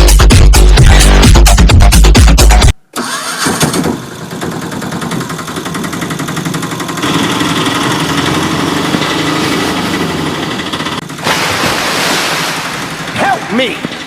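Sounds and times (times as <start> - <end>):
small engine puttering: 2.9 - 11.4.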